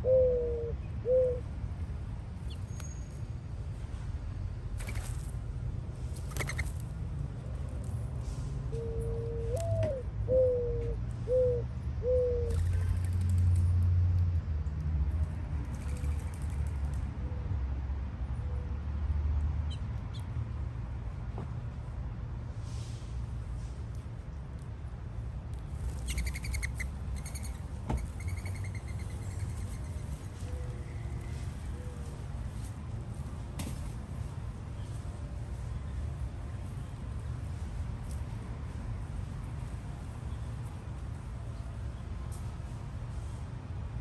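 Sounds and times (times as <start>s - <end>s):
bird hooting: 0.0s - 1.5s, 8.8s - 12.5s
small bird chirping trills: 26.0s - 27.6s.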